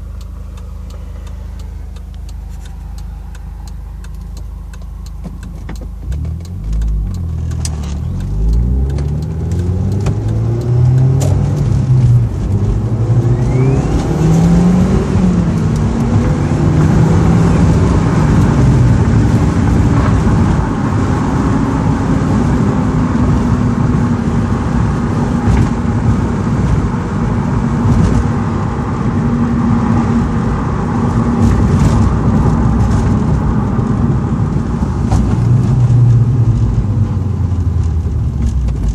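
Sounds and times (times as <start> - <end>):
car engine accelerating: 0.0 - 38.9
thin turbo whistle: 13.2 - 14.4.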